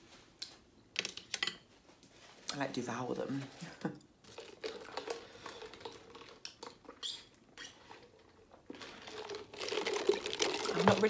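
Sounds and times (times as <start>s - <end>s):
chewing food: 4.2s - 10.9s.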